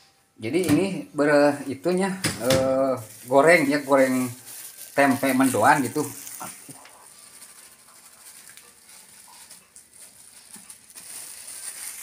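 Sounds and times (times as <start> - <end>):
flour poured from plastic bag: 2.8 - 12.0
food sizzling in a pan: 3.0 - 6.7.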